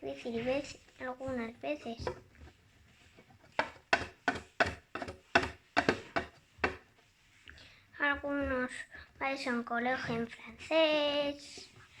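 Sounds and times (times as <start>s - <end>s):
sharp taps on hard surface: 3.5s - 6.9s.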